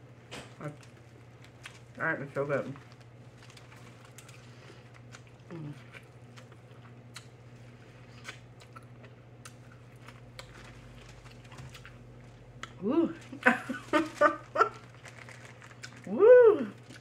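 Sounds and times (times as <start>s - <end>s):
chewing corn on the cob: 2.7s - 16.1s, 16.7s - 17.0s
person humming mm: 5.5s - 5.8s.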